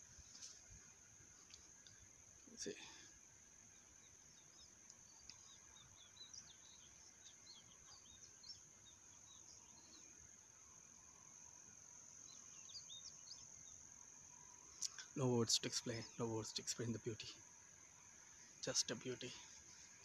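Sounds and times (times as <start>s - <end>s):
small bird chirps: 3.7s - 10.1s, 12.3s - 13.9s.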